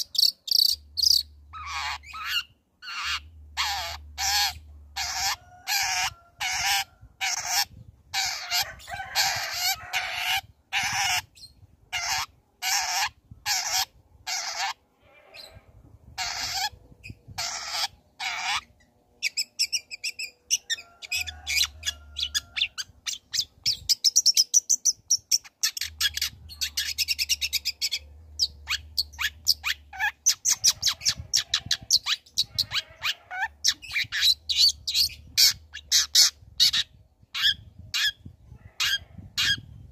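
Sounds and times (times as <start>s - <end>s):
bird high-pitched chattering twitter: 0.0s - 5.4s
bird harsh rasping calls: 0.0s - 11.3s, 11.9s - 15.6s, 16.2s - 23.5s.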